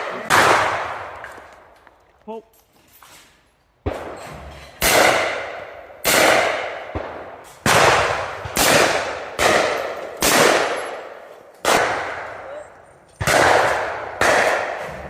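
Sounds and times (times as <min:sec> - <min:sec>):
shotgun shots echoing: 0:00.0 - 0:01.4, 0:03.8 - 0:12.6, 0:13.2 - 0:15.0.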